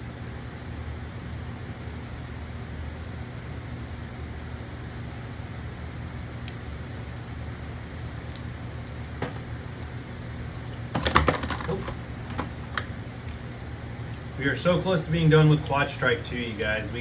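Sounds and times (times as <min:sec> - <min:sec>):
steady low hum: 0:00.0 - 0:17.0
plastic clattering knocks: 0:09.2 - 0:09.4, 0:11.0 - 0:12.5.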